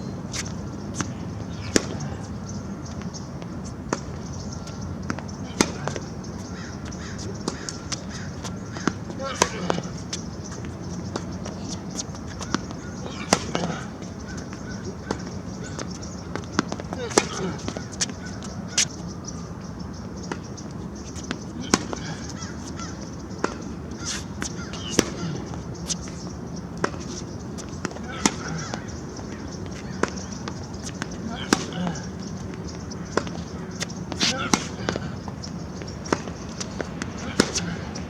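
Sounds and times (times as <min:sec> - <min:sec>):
tennis balls struck and bouncing: 0:00.3 - 0:19.2, 0:20.0 - 0:38.0.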